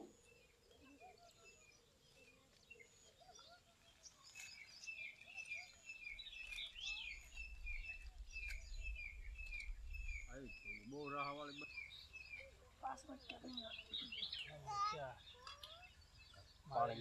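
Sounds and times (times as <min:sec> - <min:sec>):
birds chirping: 0:00.0 - 0:17.0
low rumble: 0:07.7 - 0:10.8
faint clicks: 0:15.4 - 0:16.4.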